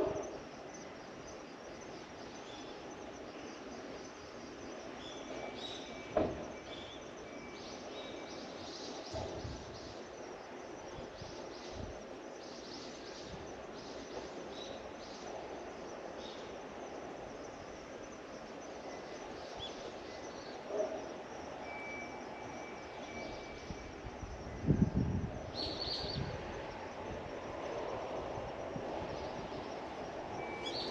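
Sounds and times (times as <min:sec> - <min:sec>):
thin whistled tone: 0:21.6 - 0:24.0.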